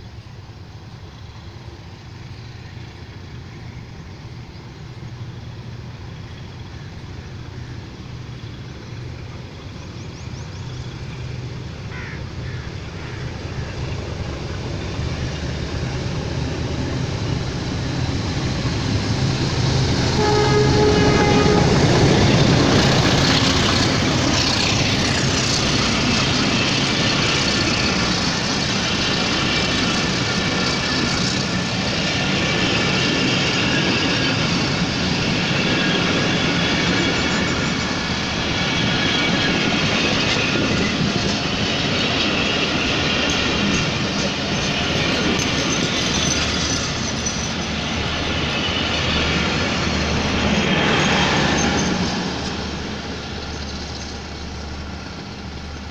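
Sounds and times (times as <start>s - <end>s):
diesel locomotive engine drone: 0.0s - 55.9s
wheel and rail noise: 0.0s - 55.9s
train horn note: 20.0s - 22.6s.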